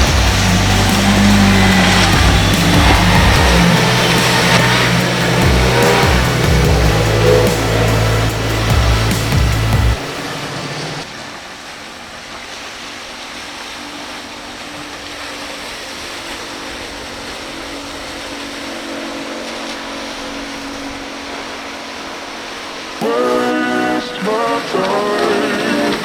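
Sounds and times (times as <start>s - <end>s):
music with heavy bass: 0.0s - 10.2s
boat motor humming: 0.0s - 26.0s
waves washing: 0.0s - 26.0s
wind: 0.0s - 26.0s.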